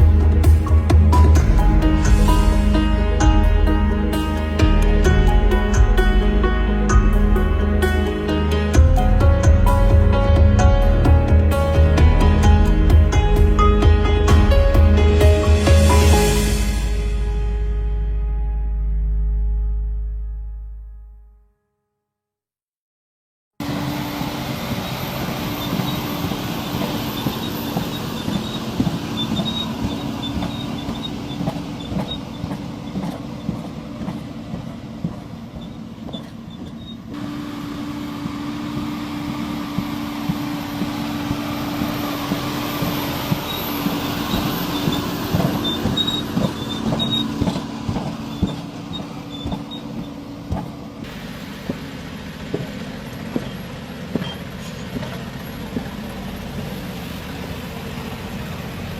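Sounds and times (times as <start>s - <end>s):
heavy machinery humming: 23.6s - 58.9s
metal parts clicking and squeaking: 26.9s - 33.2s, 43.4s - 50.2s.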